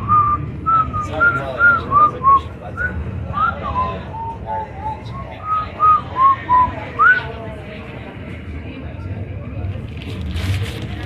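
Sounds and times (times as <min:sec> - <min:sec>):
person whistling a tune: 0:00.1 - 0:07.2.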